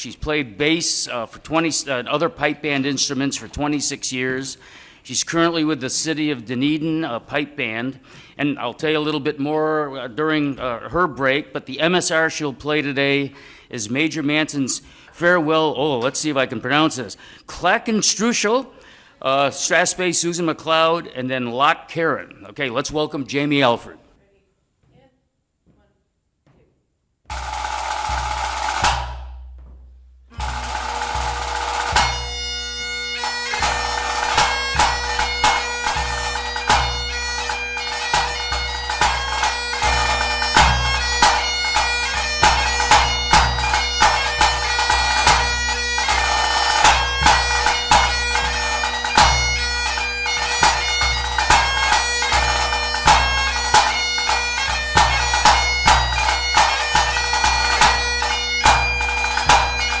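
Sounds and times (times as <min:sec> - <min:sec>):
bagpipe playing a march: 0:27.3 - 0:29.2, 0:30.3 - 1:00.0
drum roll: 0:27.3 - 0:32.4
bass drum beats: 0:27.3 - 0:32.8.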